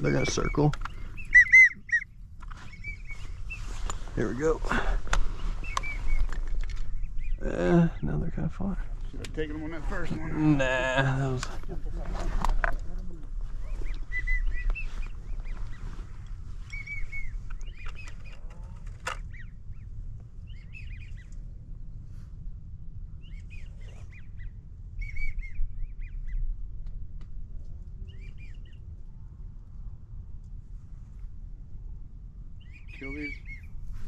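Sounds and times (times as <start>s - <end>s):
low steady rumble: 0.0s - 34.0s
duck whistling: 1.2s - 2.1s, 5.6s - 6.2s, 13.8s - 14.9s.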